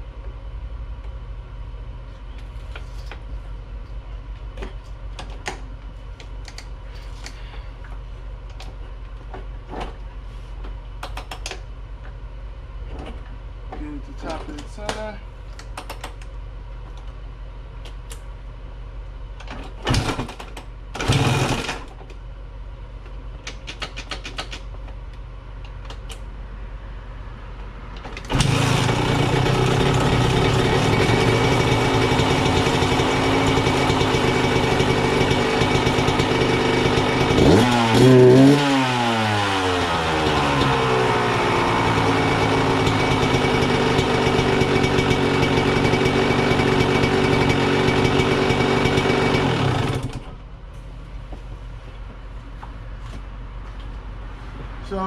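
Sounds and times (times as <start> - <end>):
motorcycle kick-start thumps: 19.5 - 21.9, 28.0 - 38.0
motorcycle engine running: 21.0 - 21.7, 28.3 - 50.3
motorcycle engine revving: 21.0 - 21.8, 28.2 - 50.2.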